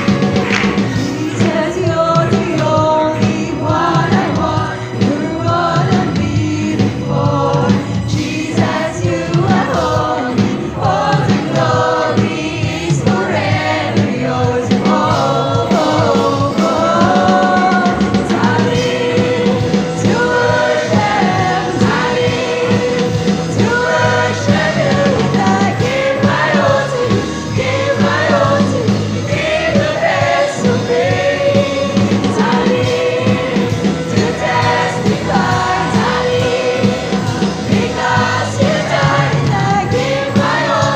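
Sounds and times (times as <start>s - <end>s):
choir singing gospel: 0.0s - 40.9s
musical accompaniment: 0.0s - 40.9s.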